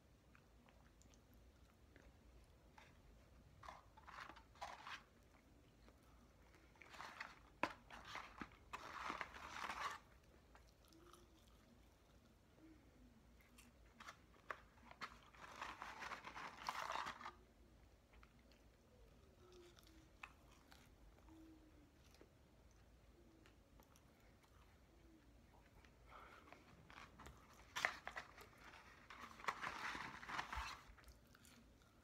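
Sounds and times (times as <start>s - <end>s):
crunchy chewing: 18.1s - 32.0s.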